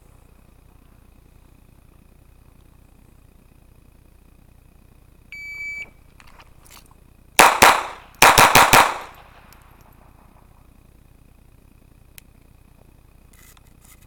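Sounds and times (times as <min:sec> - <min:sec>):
electronic timer beep: 0:05.3 - 0:05.9
pistol firing rapid shots: 0:07.4 - 0:09.5.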